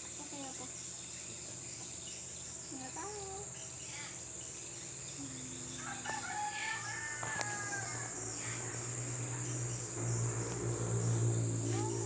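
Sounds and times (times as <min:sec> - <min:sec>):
insects chirring: 0:00.0 - 0:12.0
rooster crowing: 0:05.7 - 0:12.0.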